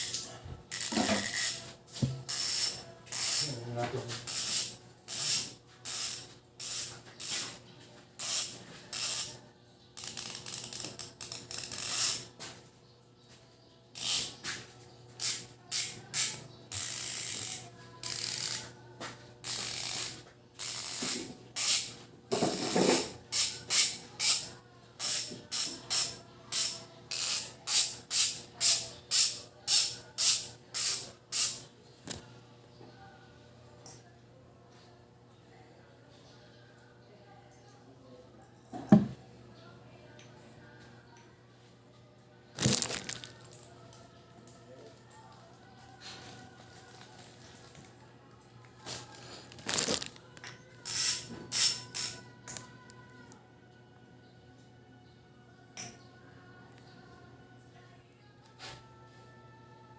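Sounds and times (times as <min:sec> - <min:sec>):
bike hub ratcheting clicks: 0:00.7 - 0:01.6, 0:02.3 - 0:03.5, 0:04.3 - 0:07.5, 0:08.2 - 0:09.3, 0:10.0 - 0:12.3, 0:14.0 - 0:14.4, 0:15.2 - 0:18.7, 0:19.4 - 0:21.9, 0:23.3 - 0:31.6, 0:50.8 - 0:52.6.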